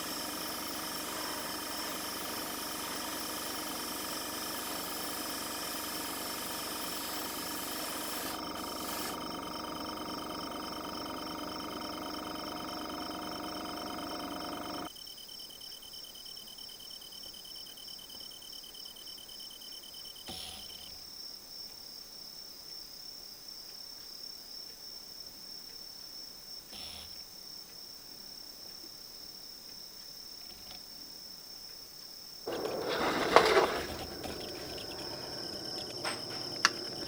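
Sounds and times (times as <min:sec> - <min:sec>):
steady hum: 0:00.0 - 0:14.9, 0:32.5 - 0:37.0
crickets chirping: 0:00.0 - 0:20.2, 0:27.4 - 0:37.0.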